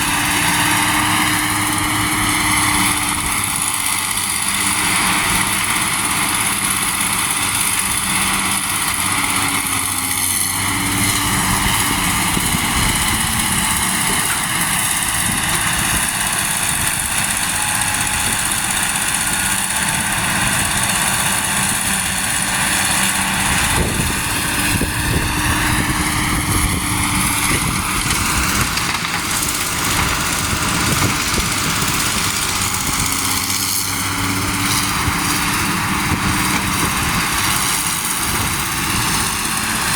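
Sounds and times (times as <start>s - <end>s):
truck diesel engines running: 0.0s - 39.9s.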